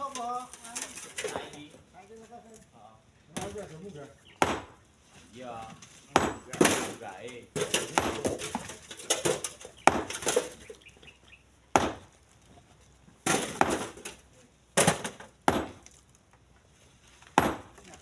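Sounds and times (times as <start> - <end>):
stone chunks knocking into truck bed: 4.4 - 4.8, 6.1 - 10.7, 11.7 - 12.2, 13.2 - 16.0, 17.3 - 17.9.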